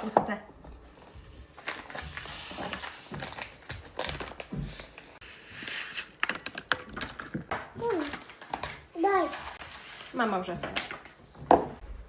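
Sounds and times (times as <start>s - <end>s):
rustling and crinkling: 0.7s - 11.9s.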